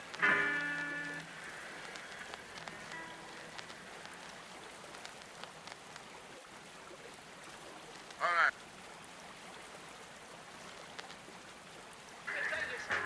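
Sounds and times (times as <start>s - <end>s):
blues record playing: 0.0s - 4.2s, 12.3s - 13.0s
steady rain: 0.0s - 13.0s.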